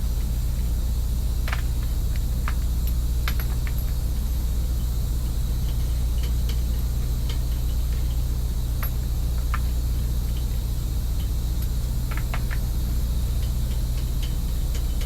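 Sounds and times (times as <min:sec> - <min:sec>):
light clicks and clinks: 0:02.5 - 0:04.0.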